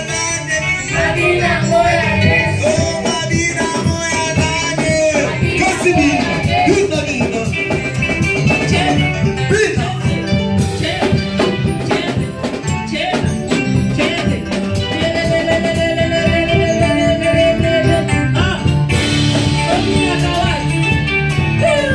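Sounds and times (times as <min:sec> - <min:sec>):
live worship band music: 0:00.0 - 0:21.9
people singing: 0:00.0 - 0:21.9.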